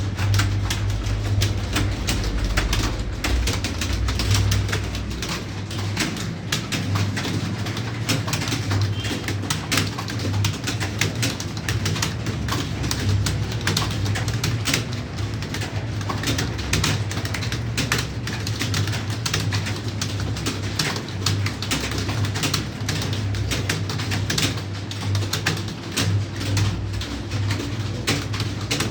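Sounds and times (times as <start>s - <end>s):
steady low hum: 0.0s - 6.8s
keyboard typing: 0.0s - 28.9s.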